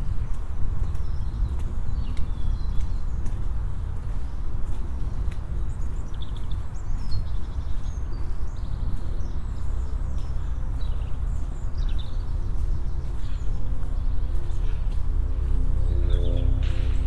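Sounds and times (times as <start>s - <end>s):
steady low rumble: 12.7s - 17.0s.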